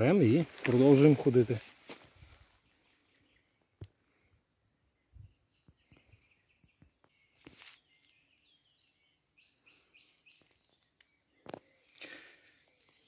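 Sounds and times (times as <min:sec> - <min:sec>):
faint songbird singing: 0:00.0 - 0:13.0.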